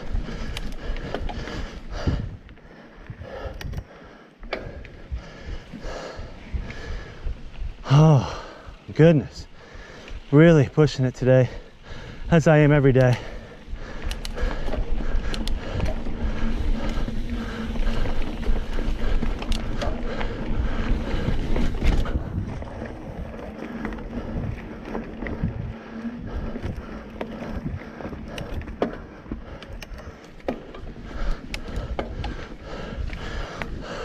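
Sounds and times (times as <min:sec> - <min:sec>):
bike tyres rumbling on dirt: 0:00.0 - 0:34.0
wind: 0:00.0 - 0:34.0
bike rattling and knocking: 0:12.1 - 0:34.0.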